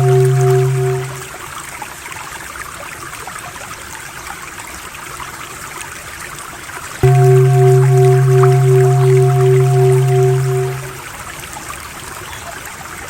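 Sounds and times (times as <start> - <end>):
low steady drone: 0.0 - 1.3, 7.0 - 11.0
trickling stream: 0.0 - 13.0.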